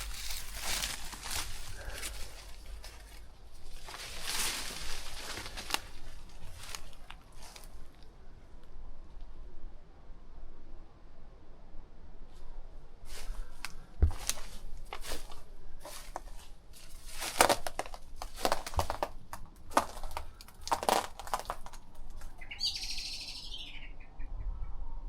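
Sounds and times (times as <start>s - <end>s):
small bird singing: 22.2s - 24.8s.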